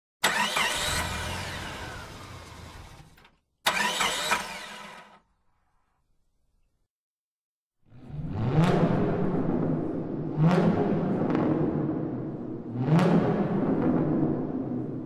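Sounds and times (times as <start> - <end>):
car engine revving: 0.2 - 5.2, 8.0 - 15.0.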